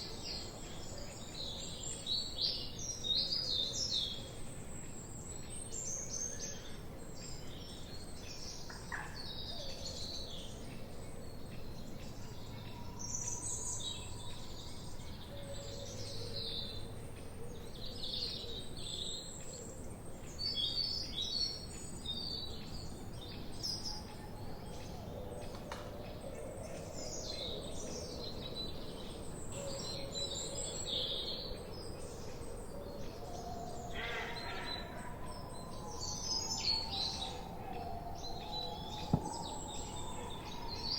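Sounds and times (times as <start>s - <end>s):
birds chirping and singing: 26.1s - 40.9s.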